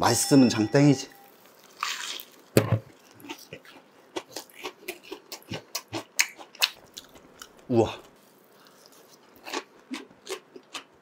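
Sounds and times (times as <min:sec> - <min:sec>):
crispy food crunching: 0:01.3 - 0:11.0.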